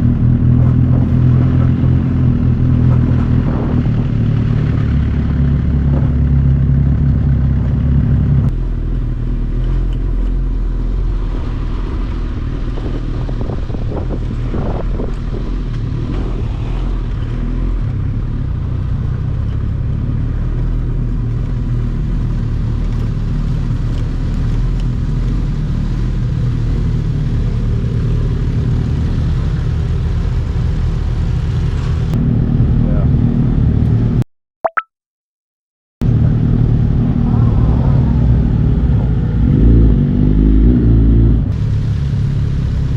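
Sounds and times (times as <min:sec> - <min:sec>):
wind noise: 0:00.0 - 0:06.7, 0:09.3 - 0:17.9, 0:36.0 - 0:42.2
motorcycle engine running: 0:00.0 - 0:15.9.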